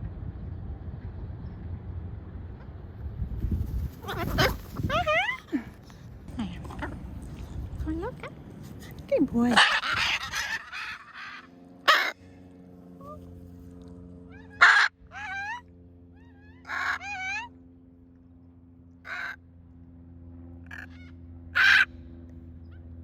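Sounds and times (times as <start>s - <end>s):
macaws squawking: 4.0s - 5.5s, 9.4s - 12.3s, 14.3s - 17.5s, 19.1s - 19.4s, 20.7s - 21.9s.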